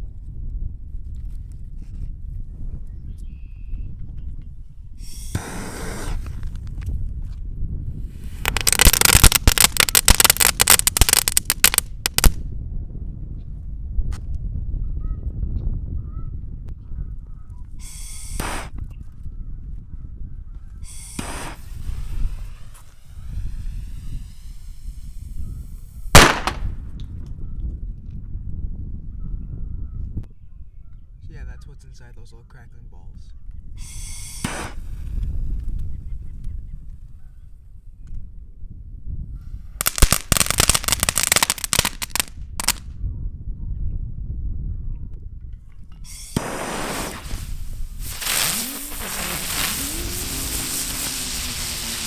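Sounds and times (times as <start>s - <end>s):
wind rumbling on microphone: 0.0s - 31.6s, 33.0s - 52.0s
fireworks hissing fizzes: 5.0s - 6.8s, 8.0s - 12.4s, 17.8s - 18.8s, 20.8s - 26.8s, 33.8s - 35.6s, 39.8s - 42.8s, 46.1s - 52.0s
firework sharp bang: 8.2s - 12.4s, 17.8s - 18.7s, 20.9s - 26.9s, 34.3s - 35.0s, 46.1s - 52.0s.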